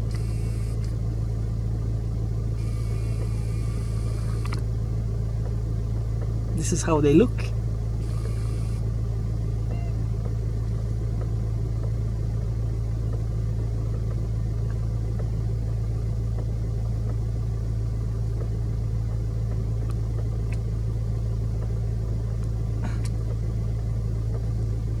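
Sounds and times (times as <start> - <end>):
constant rumble: 0.0 - 25.0
low mechanical hum: 0.0 - 25.0
faint ticks: 0.1 - 1.0, 2.6 - 4.7, 19.5 - 20.7.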